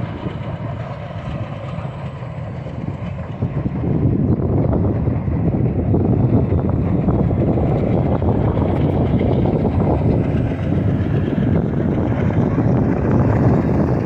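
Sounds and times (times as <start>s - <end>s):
train rumbling past: 0.0s - 14.0s.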